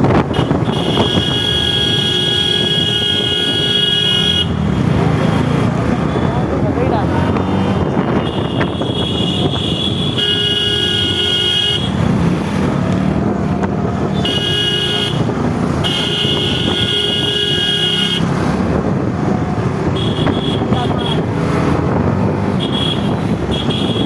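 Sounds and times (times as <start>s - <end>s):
motorcycle engine: 0.0s - 24.0s
wind noise: 0.0s - 24.0s
vehicle horn: 0.3s - 4.6s, 7.3s - 12.1s, 14.1s - 18.3s, 19.9s - 21.3s, 22.6s - 24.0s.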